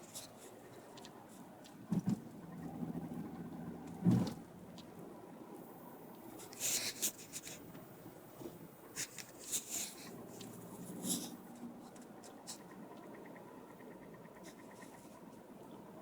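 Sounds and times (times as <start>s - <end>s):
low hum: 2.2s - 12.0s
scratchy rustles: 6.2s - 7.7s, 8.4s - 12.6s.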